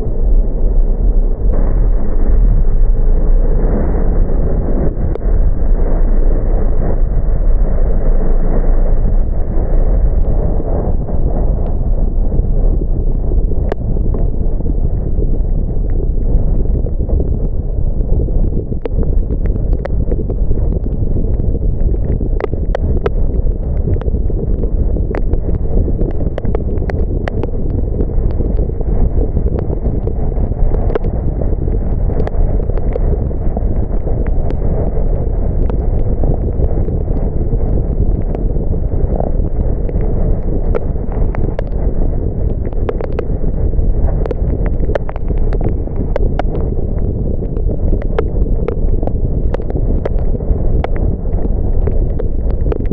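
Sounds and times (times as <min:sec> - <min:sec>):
car road and wind noise: 0:00.0 - 0:52.9
raindrops ticking on car: 0:11.5 - 0:52.9.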